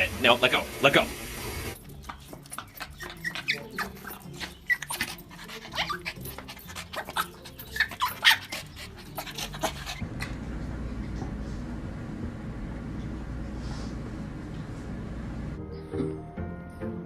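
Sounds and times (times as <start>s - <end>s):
dog whining: 2.6s - 10.3s.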